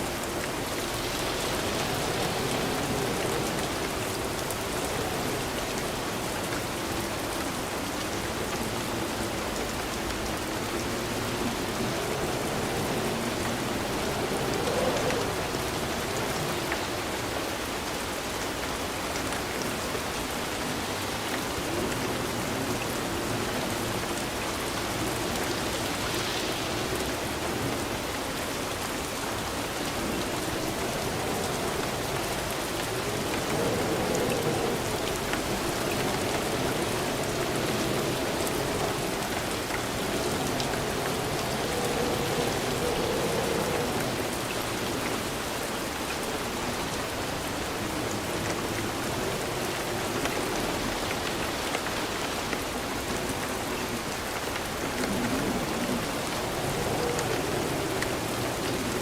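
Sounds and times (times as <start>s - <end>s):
steady rain falling: 0.0s - 59.0s
water rushing: 0.0s - 59.0s.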